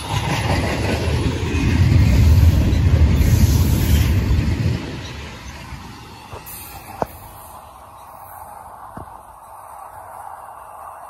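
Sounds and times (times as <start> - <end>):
train rumbling past: 0.0 - 11.0.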